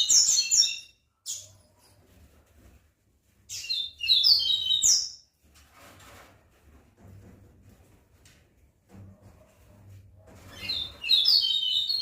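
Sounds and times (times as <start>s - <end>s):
bird chirping song: 0.0s - 2.0s, 3.5s - 5.3s, 10.5s - 12.0s.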